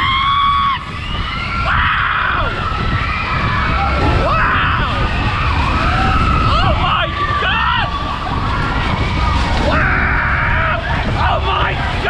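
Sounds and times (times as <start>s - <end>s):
low rumble of spinning ride: 0.0s - 12.0s
riders screaming and shouting: 0.0s - 12.0s.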